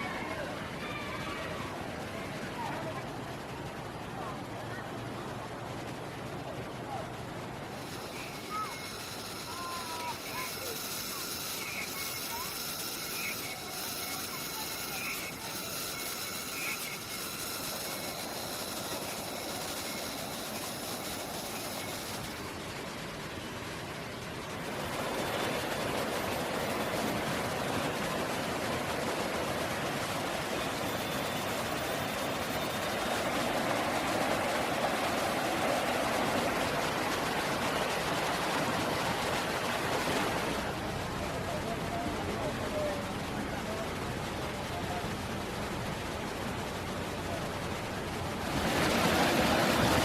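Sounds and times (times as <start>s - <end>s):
creek water running: 7.5s - 50.0s
creek water rushing: 32.4s - 41.9s, 48.2s - 50.0s.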